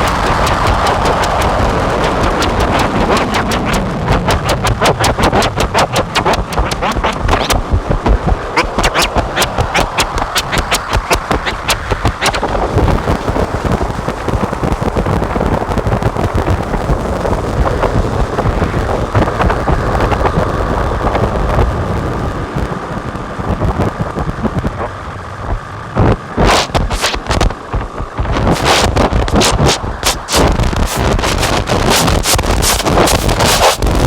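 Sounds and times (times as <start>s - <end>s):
distorted synthesizer noise drone: 0.0s - 34.0s
sharp clicks: 0.3s - 12.6s, 26.4s - 34.0s.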